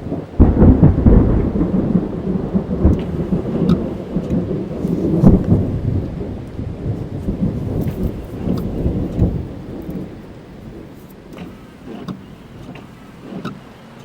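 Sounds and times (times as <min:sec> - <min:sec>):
heavy rain on car roof: 0:00.0 - 0:14.0
thunder rumbling: 0:00.0 - 0:14.0.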